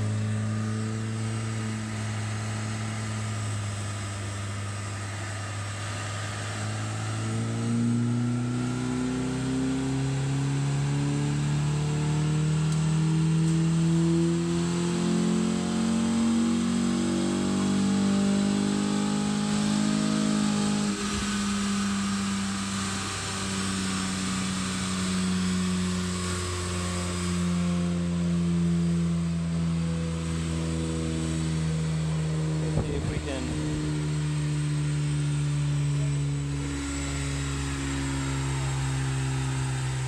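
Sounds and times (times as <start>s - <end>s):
car engine revving under load: 0.0s - 40.0s.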